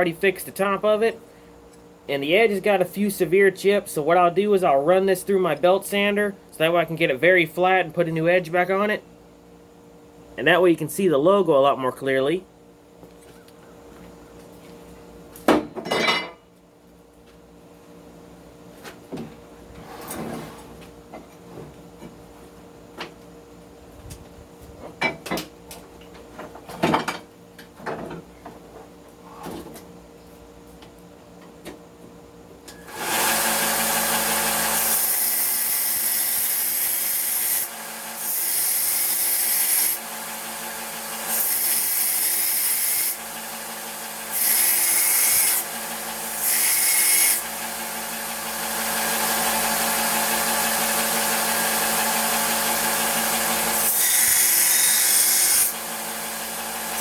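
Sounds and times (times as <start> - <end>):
belt sander grinding metal: 32.9 - 57.0.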